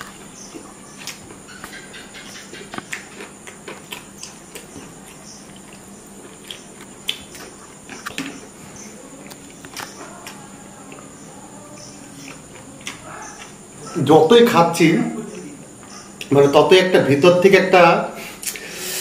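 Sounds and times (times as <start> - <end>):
chewing and lip smacking: 0.0 - 11.2, 11.8 - 14.0.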